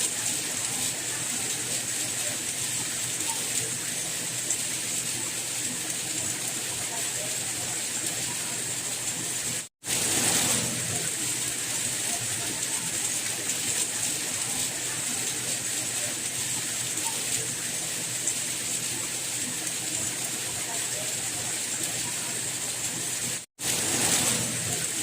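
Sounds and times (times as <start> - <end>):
steady rain: 0.0 - 25.0.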